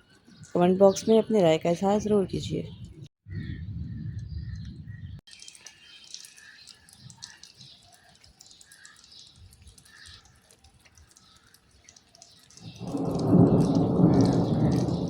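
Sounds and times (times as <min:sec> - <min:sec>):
deep thunder rumble: 0:02.8 - 0:05.2, 0:12.6 - 0:15.0
faint rain patter: 0:04.5 - 0:15.0.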